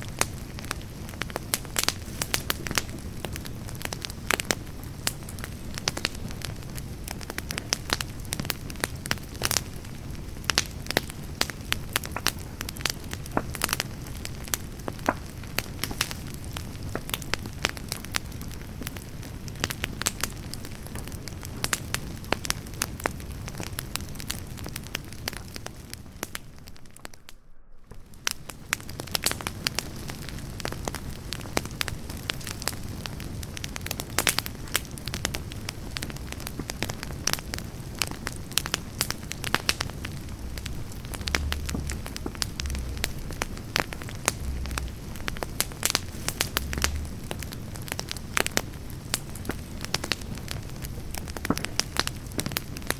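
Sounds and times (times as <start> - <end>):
campfire crackling: 0.0 - 52.9
fire hissing: 0.0 - 52.9
low thumps: 39.4 - 47.6.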